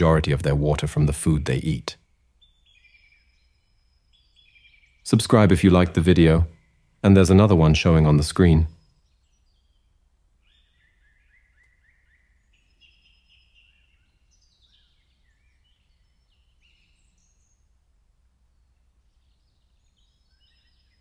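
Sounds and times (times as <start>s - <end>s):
faint bird chirps and trills: 0.0s - 21.0s
low steady hum: 0.0s - 21.0s.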